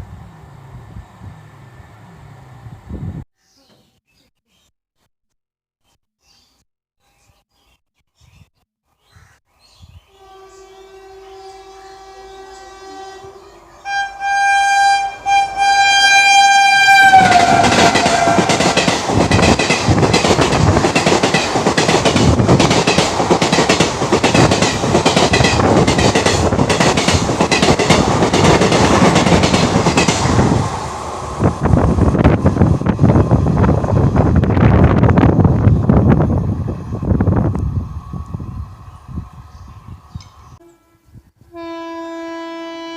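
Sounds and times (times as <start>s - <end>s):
locomotive horn blast: 10.1s - 18.9s, 40.6s - 42.9s
train wheels clickety-clack: 17.1s - 30.5s.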